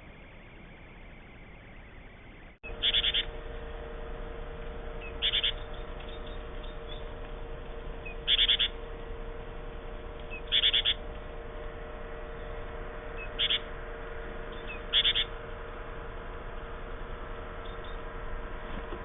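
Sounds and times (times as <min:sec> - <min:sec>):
bird chirping: 0:00.0 - 0:03.4, 0:05.0 - 0:07.2, 0:08.0 - 0:08.8, 0:10.2 - 0:11.1, 0:12.3 - 0:13.7, 0:14.5 - 0:15.4, 0:17.6 - 0:18.1
faint hum: 0:00.0 - 0:19.0.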